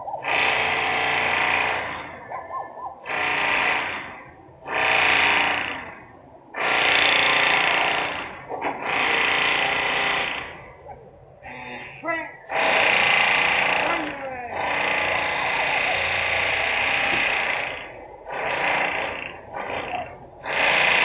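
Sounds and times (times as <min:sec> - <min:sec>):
machine hammering: 0:03.0 - 0:06.0, 0:06.6 - 0:10.6, 0:14.6 - 0:21.0.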